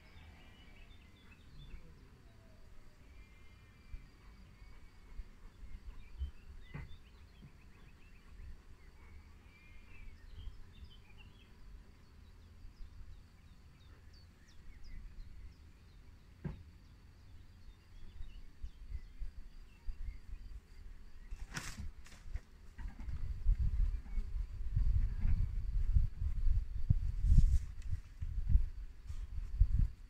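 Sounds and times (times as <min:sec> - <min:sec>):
insect drone: 0:00.0 - 0:05.8
small birds chirping: 0:00.0 - 0:25.8.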